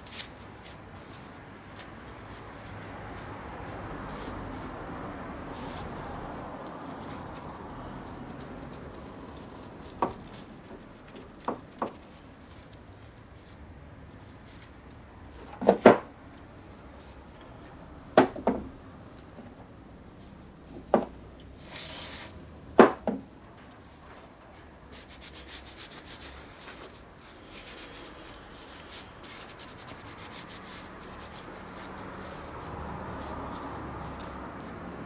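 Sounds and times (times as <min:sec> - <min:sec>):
scratchy scrubbing of rust: 0:25.0 - 0:34.9.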